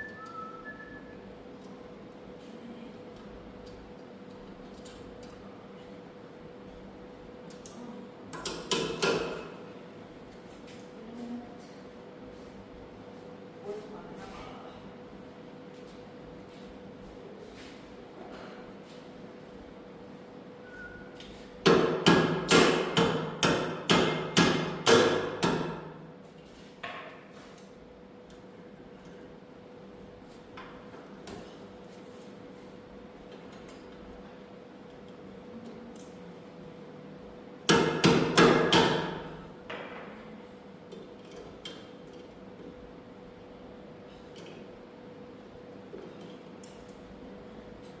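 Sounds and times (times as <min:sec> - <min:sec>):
hammer striking metal: 0:21.7 - 0:25.8.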